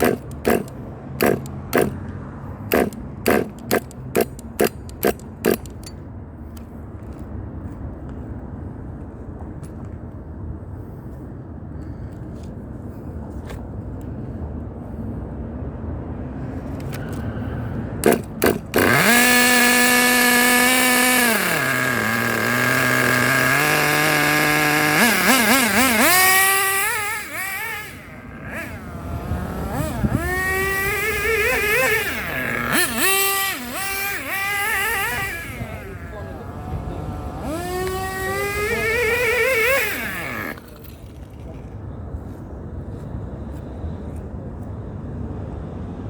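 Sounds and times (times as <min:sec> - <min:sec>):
sharp clicks: 0:00.0 - 0:02.0, 0:02.7 - 0:06.0
small engine revving: 0:00.0 - 0:06.0, 0:18.0 - 0:41.4.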